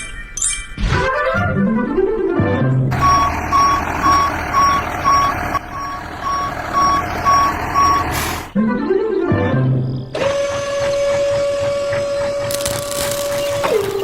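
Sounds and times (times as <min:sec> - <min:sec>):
music: 0:00.0 - 0:02.9, 0:08.6 - 0:12.5
engine running: 0:02.9 - 0:08.6, 0:10.2 - 0:14.0
truck reversing alarm beeping: 0:02.9 - 0:08.6.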